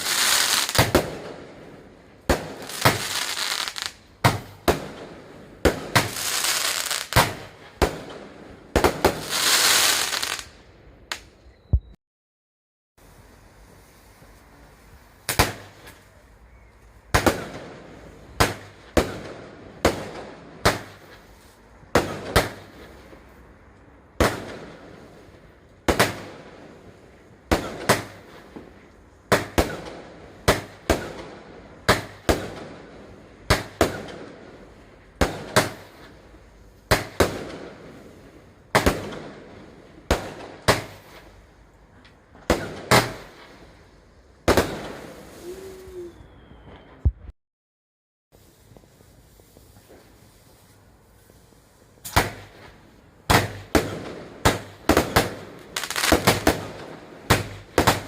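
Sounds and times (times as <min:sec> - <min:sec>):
fireworks bangs with echo: 0:00.0 - 0:10.4, 0:15.3 - 0:16.0, 0:17.1 - 0:21.2, 0:21.9 - 0:23.2, 0:24.2 - 0:25.1, 0:25.8 - 0:26.8, 0:27.5 - 0:28.7, 0:29.3 - 0:34.6, 0:35.2 - 0:36.1, 0:36.9 - 0:41.2, 0:42.4 - 0:43.6, 0:44.4 - 0:45.4, 0:52.0 - 0:58.0.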